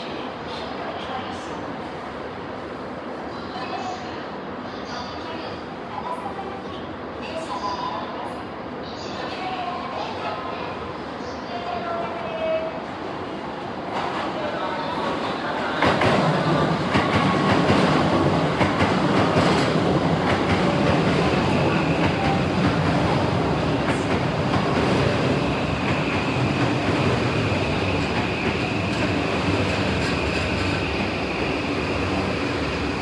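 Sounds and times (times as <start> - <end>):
electric train on tracks: 8.5 - 33.0.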